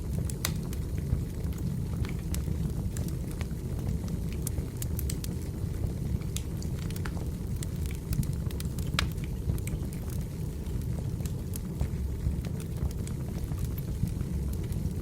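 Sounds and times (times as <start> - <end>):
firewood crackling: 0.0 - 15.0
low rush of fire: 0.0 - 15.0
sharp pops and snaps: 6.2 - 10.0.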